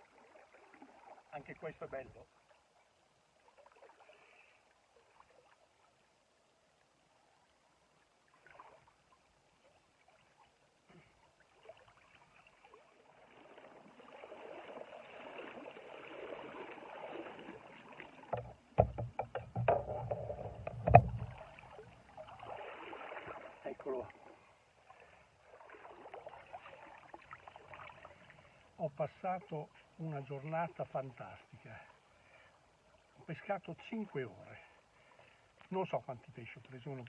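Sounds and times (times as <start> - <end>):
water splashing and sloshing: 0.0 - 37.0
knocks and thumps: 18.3 - 21.5.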